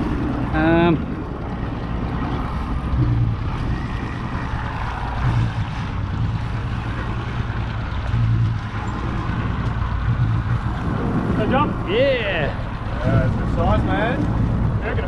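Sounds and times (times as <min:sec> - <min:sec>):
boat engine running: 0:00.0 - 0:15.0
water noise: 0:00.0 - 0:15.0
wind on microphone: 0:00.0 - 0:15.0.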